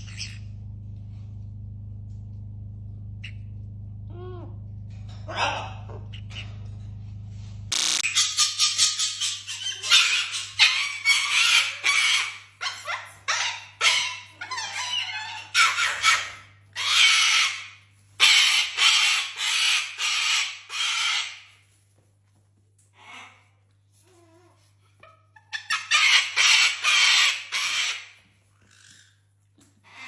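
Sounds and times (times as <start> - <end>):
pet animal harsh calls: 7.7 - 21.4.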